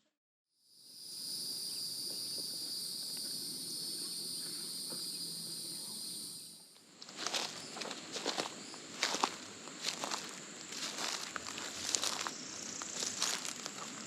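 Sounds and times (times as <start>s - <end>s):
high-pitched insect drone: 0.6s - 14.0s
footsteps: 6.8s - 14.0s.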